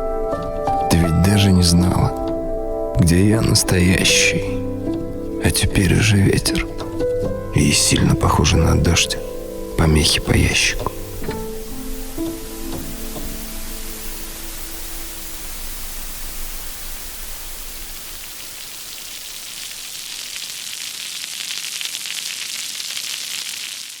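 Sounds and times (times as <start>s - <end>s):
background music: 0.0s - 16.2s
static hiss: 1.0s - 24.0s.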